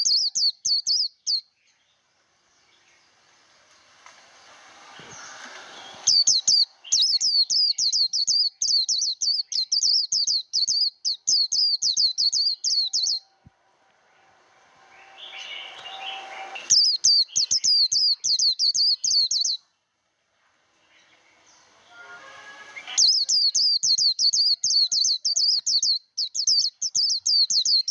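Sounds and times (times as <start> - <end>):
soft rising hiss: 1.6 - 7.7, 13.1 - 17.6, 19.7 - 23.5
bird chattering high notes: 21.9 - 25.5.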